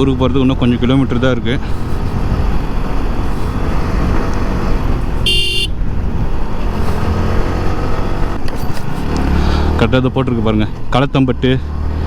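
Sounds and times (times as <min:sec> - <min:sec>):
motorcycle running: 0:00.0 - 0:10.7
road rumble: 0:00.0 - 0:12.0
wind: 0:00.0 - 0:12.0
vehicle horn beep: 0:05.2 - 0:05.8.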